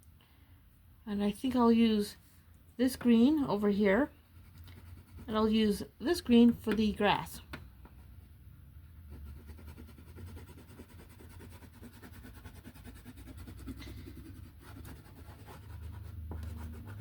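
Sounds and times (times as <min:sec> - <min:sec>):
colouring tool scratching on paper: 0:04.4 - 0:05.8, 0:09.0 - 0:17.0.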